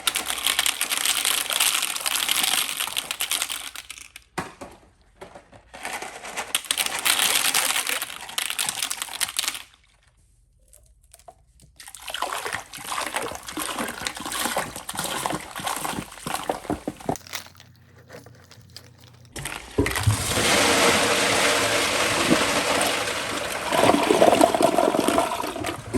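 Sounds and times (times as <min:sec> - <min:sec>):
splashing into toilet bowl: 0:11.8 - 0:17.2, 0:19.4 - 0:25.9
toilet flushing: 0:19.4 - 0:25.9.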